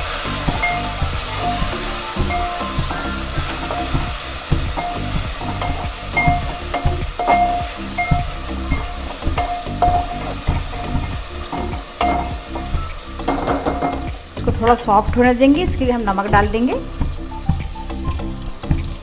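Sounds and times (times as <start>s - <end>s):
vegetables sizzling in oil: 0.0s - 19.0s
spoon knocking pot metallic ring: 4.8s - 14.2s.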